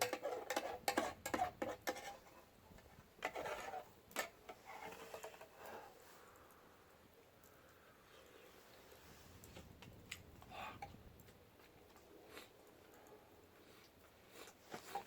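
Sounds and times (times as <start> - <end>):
utensil scraping a pan: 0.0 - 6.1, 14.7 - 15.0.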